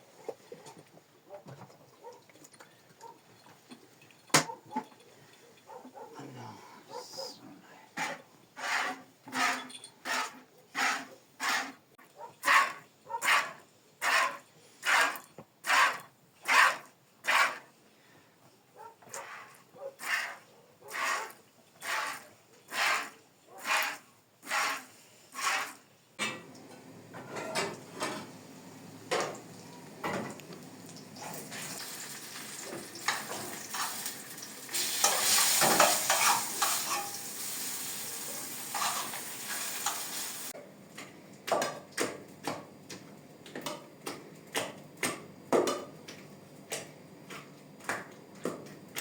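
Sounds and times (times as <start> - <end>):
utensil stirring and scraping pan: 8.0 - 11.8, 12.4 - 17.7, 19.1 - 25.8, 34.8 - 40.2
loud sizzling: 31.6 - 40.5.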